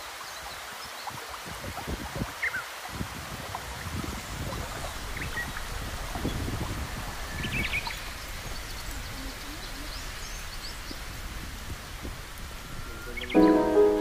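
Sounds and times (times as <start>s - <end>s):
background hiss: 0.0s - 14.0s
low rumble: 4.6s - 13.8s
high bird chirps: 12.4s - 14.0s.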